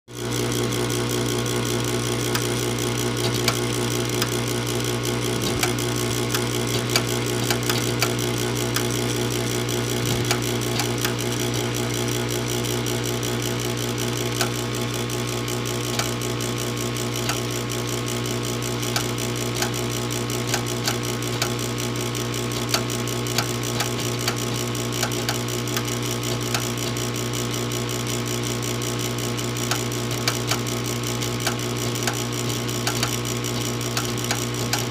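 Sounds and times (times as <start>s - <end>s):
furnace motor humming: 0.1s - 34.9s
sharp irregular clicks: 3.2s - 4.4s, 5.4s - 9.1s, 10.0s - 11.8s, 15.9s - 16.2s, 17.2s - 17.4s, 18.9s - 19.8s, 20.5s - 21.6s, 22.5s - 27.0s, 29.6s - 30.7s, 31.3s - 34.9s.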